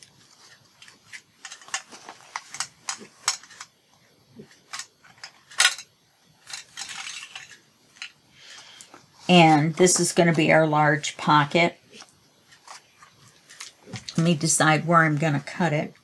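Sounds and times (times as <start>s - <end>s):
paper handling clicks and rustles: 0.0s - 3.8s, 4.4s - 9.0s, 11.9s - 14.5s.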